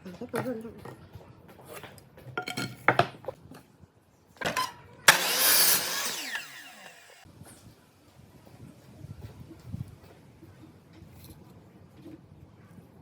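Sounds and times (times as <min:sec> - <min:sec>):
power tool running: 0:05.1 - 0:07.2.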